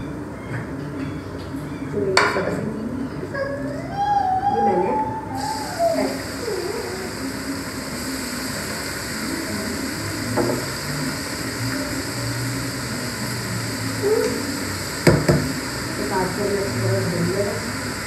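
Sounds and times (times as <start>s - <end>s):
vegetables sizzling in oil: 5.4s - 18.0s.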